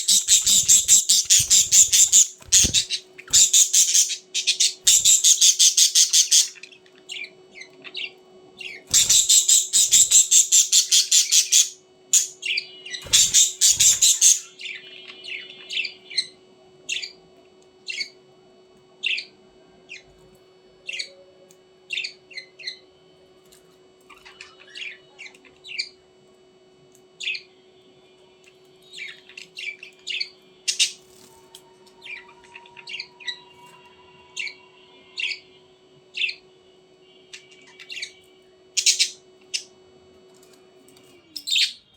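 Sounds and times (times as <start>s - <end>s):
budgerigar chirps: 0.0s - 6.6s, 8.9s - 12.4s
budgerigars squawking: 0.0s - 6.6s, 8.9s - 12.3s, 13.0s - 14.5s.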